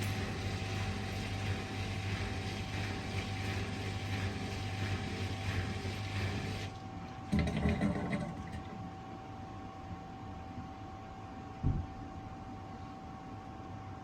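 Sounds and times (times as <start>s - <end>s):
washer dryer running: 0.0s - 9.0s.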